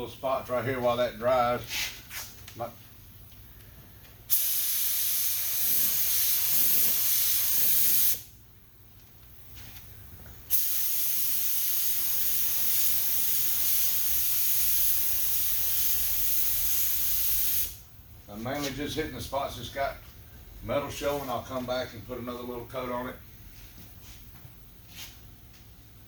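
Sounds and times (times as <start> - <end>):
spray gun hissing: 4.3 - 8.3, 10.5 - 17.8.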